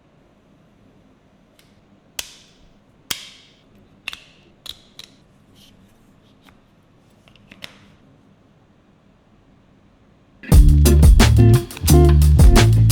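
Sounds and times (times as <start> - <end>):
plastic parts clicking and snapping: 1.6 - 5.2.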